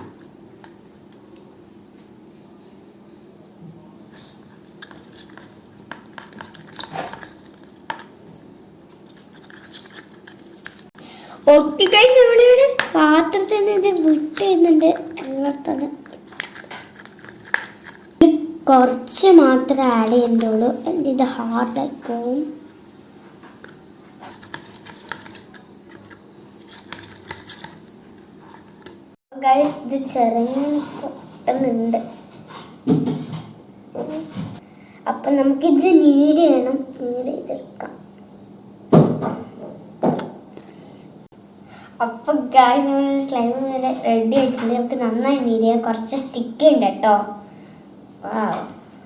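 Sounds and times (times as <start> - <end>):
spoon scraping bowl of slime: 4.2 - 11.0, 11.8 - 18.2, 19.0 - 22.2, 23.6 - 29.1, 29.8 - 31.5.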